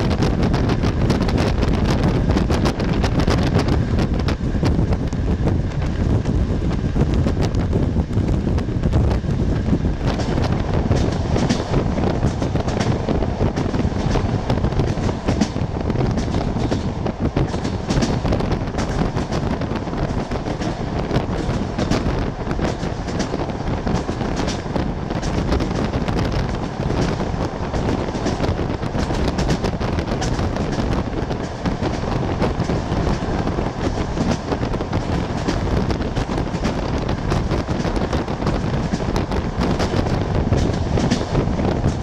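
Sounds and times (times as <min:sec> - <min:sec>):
train rumbling: 0:00.0 - 0:42.0
rapid rattling and clattering: 0:09.6 - 0:42.0.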